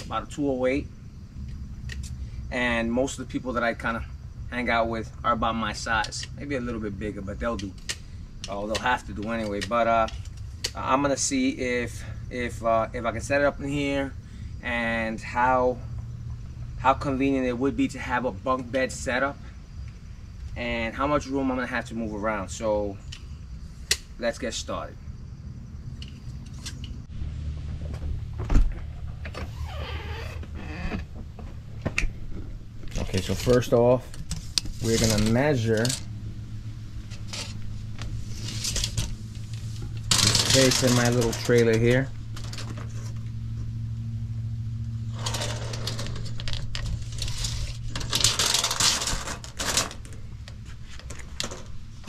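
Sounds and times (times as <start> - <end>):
steady low hum: 0.0 - 52.0
camera handling rumble: 26.0 - 27.0, 45.1 - 51.8
wavering squeak: 29.0 - 31.2
tape measure blade rattling: 34.3 - 36.1, 40.1 - 42.7, 45.2 - 50.1.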